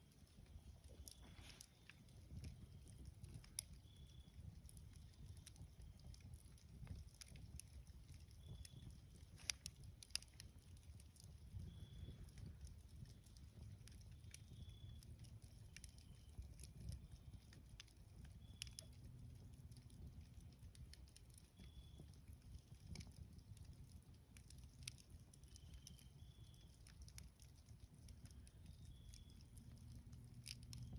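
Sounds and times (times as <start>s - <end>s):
campfire crackling: 0.0s - 30.9s
faint high-pitched chirps: 0.4s - 7.0s, 7.7s - 17.6s, 18.2s - 19.1s, 21.4s - 23.0s, 25.3s - 27.0s, 28.2s - 30.0s
low steady rumble: 27.3s - 30.9s.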